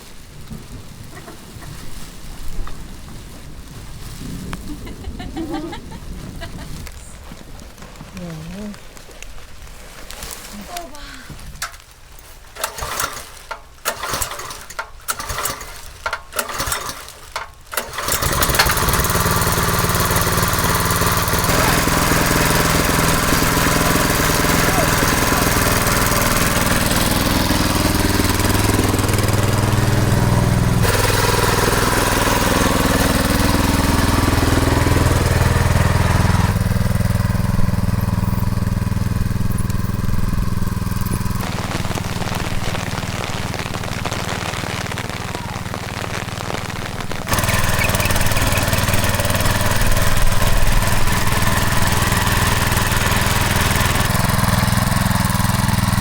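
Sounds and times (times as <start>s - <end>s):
knocks and clatter: 12.6s - 19.2s
small engine running: 12.6s - 56.0s.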